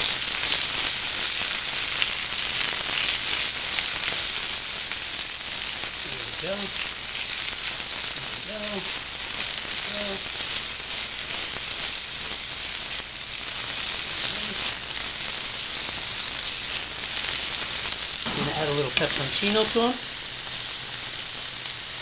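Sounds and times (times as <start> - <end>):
vegetables frying in a pan: 0.0 - 22.0.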